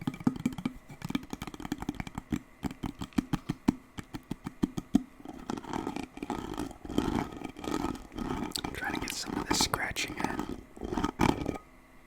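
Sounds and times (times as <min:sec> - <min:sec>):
continuous scratching: 0:00.0 - 0:11.6
fast tapping on an object: 0:00.0 - 0:11.6.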